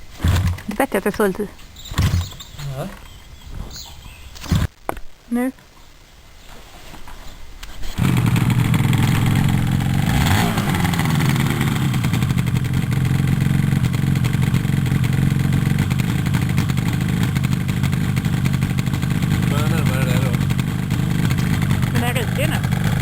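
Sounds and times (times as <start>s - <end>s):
motorcycle engine starting and idling: 0.2s - 2.6s, 8.0s - 23.0s.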